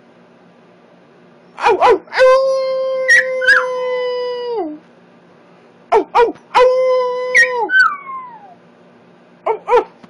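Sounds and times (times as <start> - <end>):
puppy howling: 1.6 - 4.8, 5.9 - 8.6, 9.5 - 9.9
puppy yelps: 3.0 - 3.7, 5.9 - 8.6, 9.5 - 10.0.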